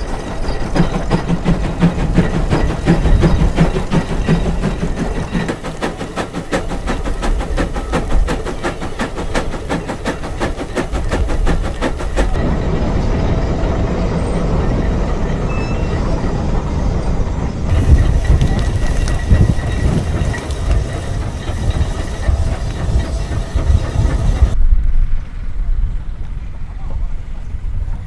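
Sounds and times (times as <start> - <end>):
steam engine exhaust chuffing: 0.0 - 12.5, 17.7 - 24.6.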